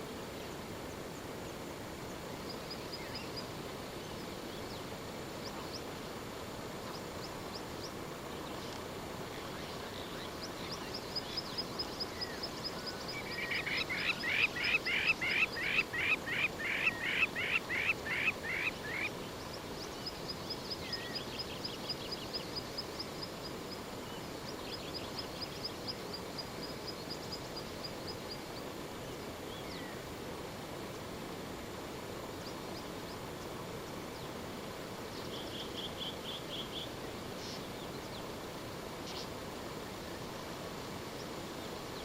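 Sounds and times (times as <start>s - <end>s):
outdoor background hiss: 0.0s - 42.0s
bird calling: 13.2s - 19.1s.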